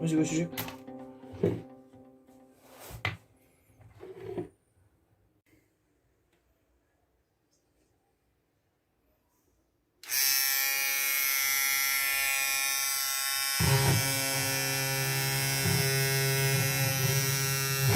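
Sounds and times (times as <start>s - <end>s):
electric shaver buzzing: 10.0s - 17.9s.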